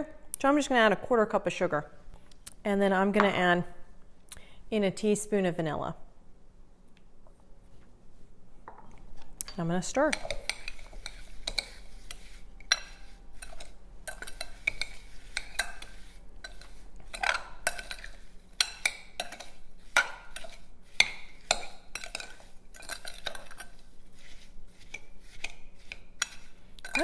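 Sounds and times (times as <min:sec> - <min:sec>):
utensil scraping and clinking bowl: 0:09.2 - 0:27.0.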